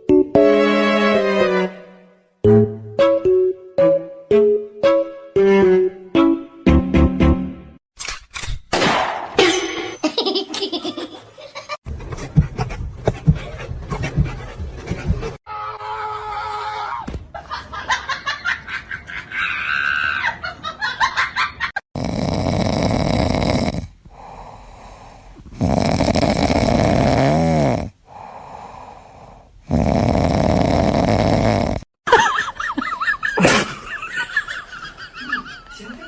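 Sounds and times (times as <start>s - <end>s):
rapid pulsing breathing: 11.9s - 15.4s
pet snoring loudly: 21.9s - 31.9s.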